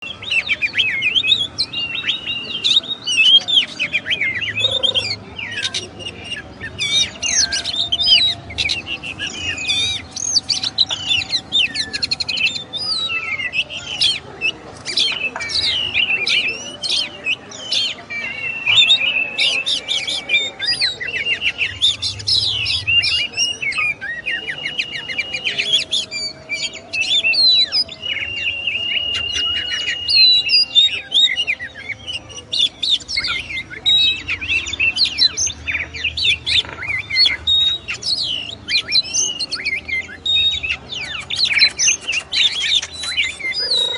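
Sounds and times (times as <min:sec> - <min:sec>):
magpie-robin singing: 0:00.0 - 0:43.9.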